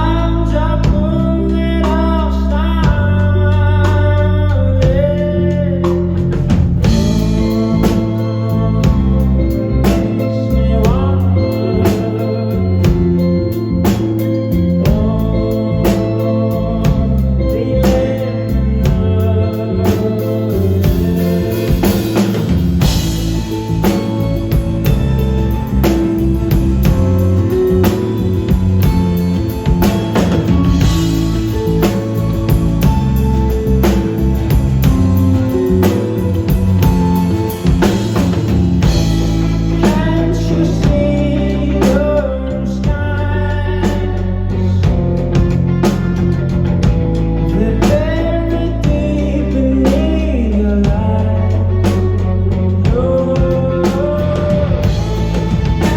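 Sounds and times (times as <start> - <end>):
person singing: 0.0 - 46.8, 47.4 - 55.9
guitar: 0.0 - 55.9
live rock band playing: 0.0 - 55.9
organ-like keyboard chords: 0.0 - 55.9
drum kit hits: 6.0 - 8.2, 20.9 - 40.2.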